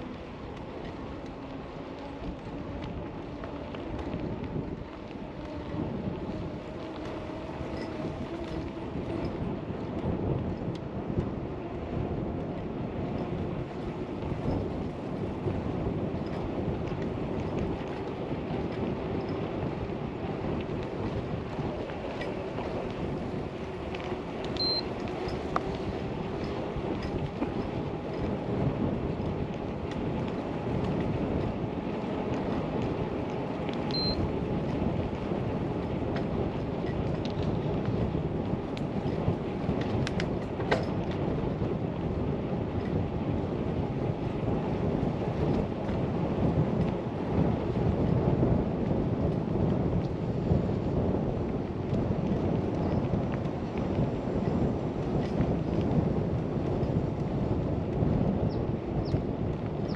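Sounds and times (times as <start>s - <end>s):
bicycle tyres on pavement: 0.0s - 59.9s
wind on microphone: 0.0s - 59.9s.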